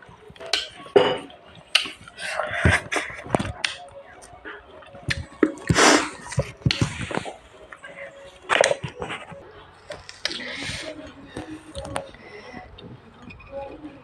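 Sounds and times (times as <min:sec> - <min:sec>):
breathy sound: 0:04.3 - 0:13.2.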